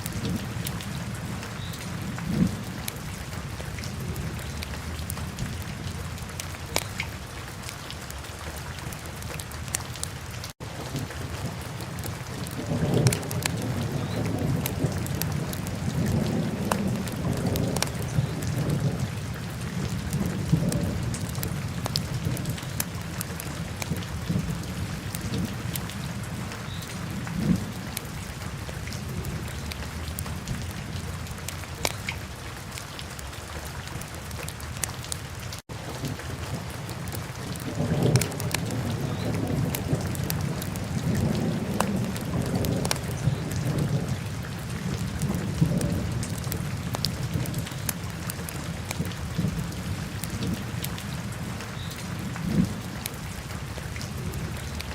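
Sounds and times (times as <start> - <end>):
fire crackles and pops: 6.7 - 8.1, 9.2 - 18.9, 19.9 - 26.0, 34.4 - 44.1.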